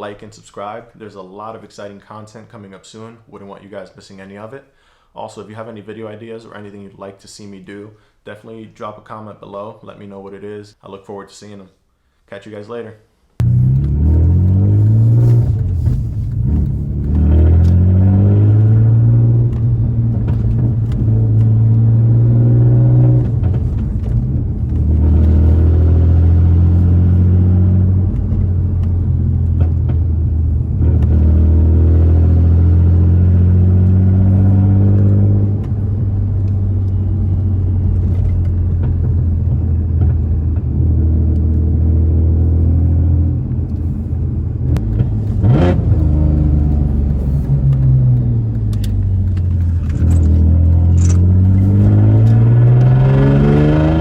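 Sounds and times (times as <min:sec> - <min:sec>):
car engine revving through exhaust: 0:13.4 - 0:54.0.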